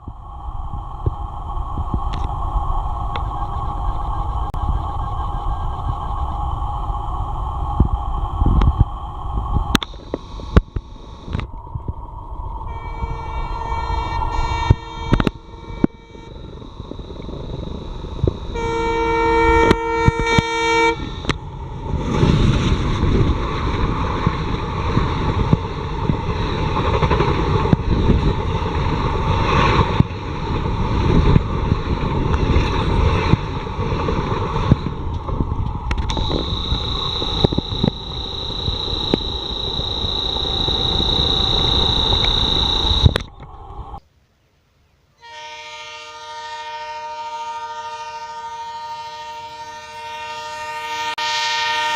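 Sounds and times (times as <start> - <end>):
high steady whine: 0.0 - 23.4, 24.1 - 44.1
train rumbling on rails: 0.0 - 44.0
locomotive horn: 12.7 - 16.6, 18.5 - 21.4, 45.2 - 51.9.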